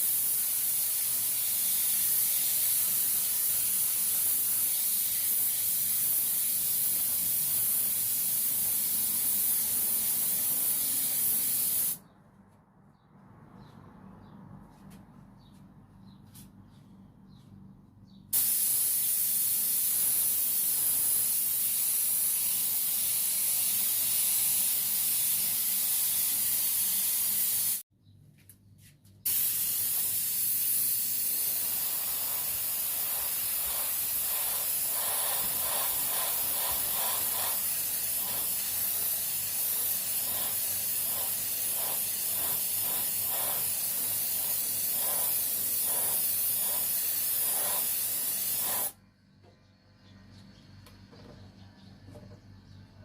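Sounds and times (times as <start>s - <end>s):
spraying hiss: 0.0s - 12.0s, 18.4s - 27.8s, 29.3s - 49.0s.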